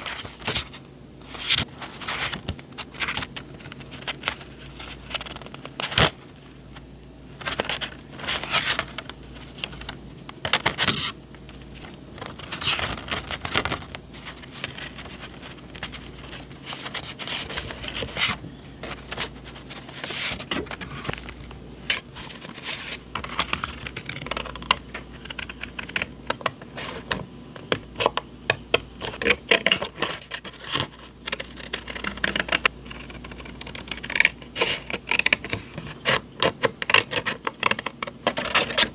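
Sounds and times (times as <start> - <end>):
paper rustling and sliding: 0.0 - 6.8, 7.4 - 27.2.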